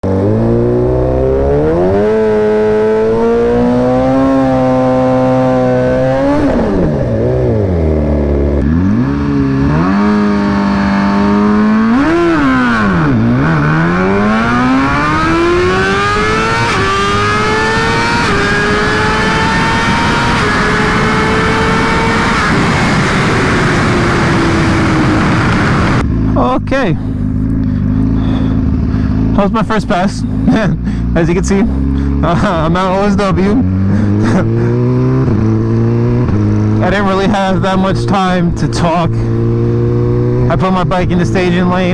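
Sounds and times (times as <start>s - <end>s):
sport bike engine revving: 0.0s - 41.9s.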